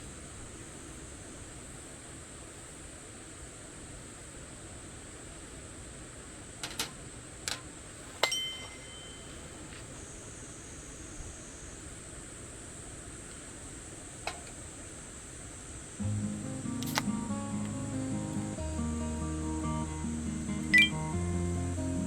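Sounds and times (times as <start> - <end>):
tableware clinking: 6.6 - 9.8.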